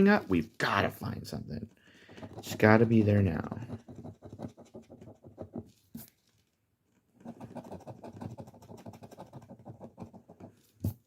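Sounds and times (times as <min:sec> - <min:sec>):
scraping lottery ticket coating: 0:02.1 - 0:03.9.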